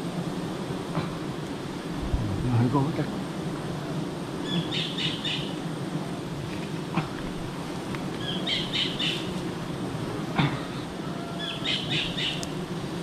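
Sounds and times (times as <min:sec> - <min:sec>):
bird chirping: 0:08.2 - 0:09.3.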